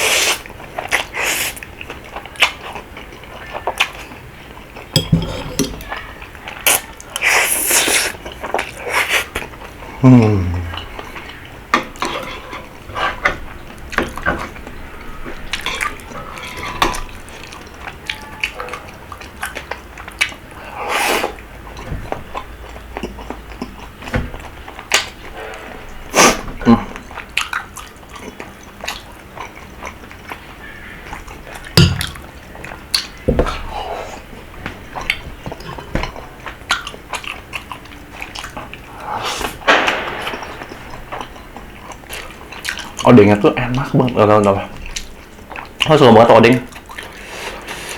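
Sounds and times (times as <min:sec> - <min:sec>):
wet mouth sounds: 0:00.0 - 0:01.6, 0:06.6 - 0:10.9
chewing and biting food: 0:10.6 - 0:25.3, 0:26.9 - 0:43.1, 0:44.0 - 0:45.9, 0:46.7 - 0:47.9.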